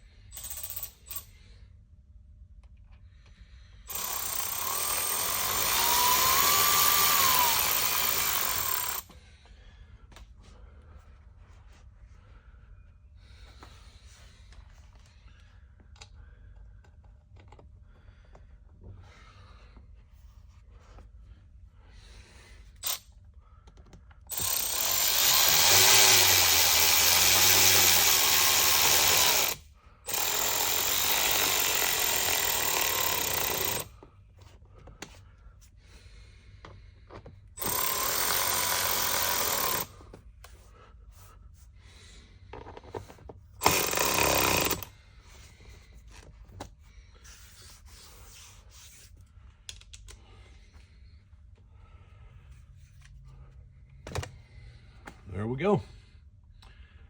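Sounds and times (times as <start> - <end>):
power tool running: 3.9 - 9.0, 24.3 - 33.9, 37.6 - 40.0, 43.6 - 44.9.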